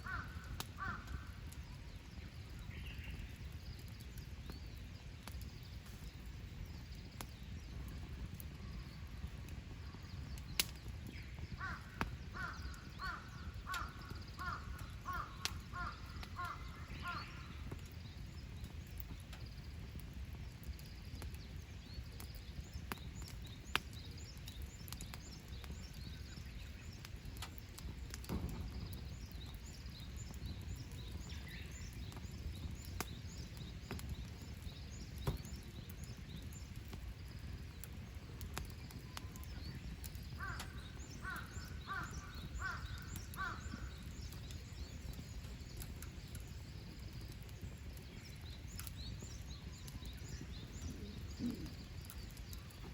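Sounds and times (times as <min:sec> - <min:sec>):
campfire crackling and popping: 0:00.0 - 0:52.9
small birds chirping: 0:00.0 - 0:52.9
bird calling rapidly: 0:40.4 - 0:44.0.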